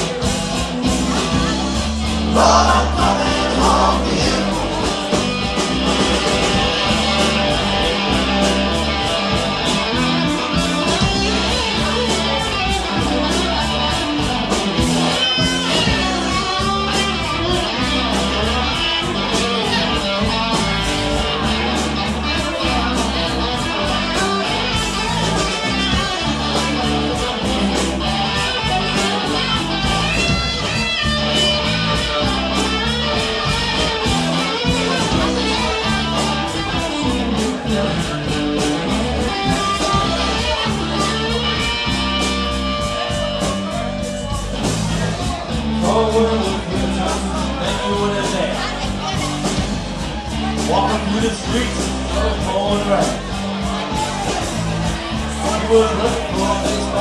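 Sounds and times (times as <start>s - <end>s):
bass guitar: 0.0s - 57.0s
electric guitars: 0.0s - 57.0s
steady drum beat: 0.0s - 57.0s.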